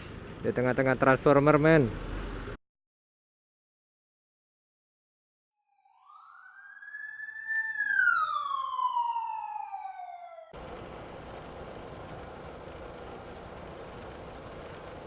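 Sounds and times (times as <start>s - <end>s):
wind and road noise: 0.0s - 2.6s
siren-like wail: 5.6s - 10.6s.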